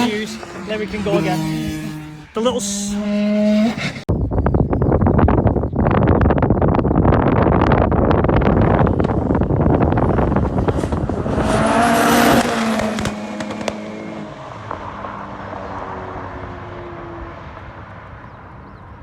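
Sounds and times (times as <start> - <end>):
car accelerating past: 0.0 - 4.1, 8.9 - 18.8.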